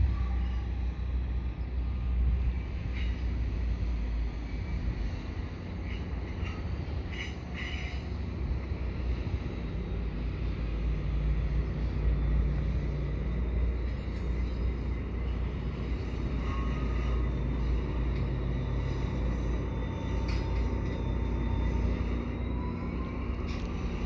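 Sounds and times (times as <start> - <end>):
train rumbling slowly along track: 0.0 - 24.0.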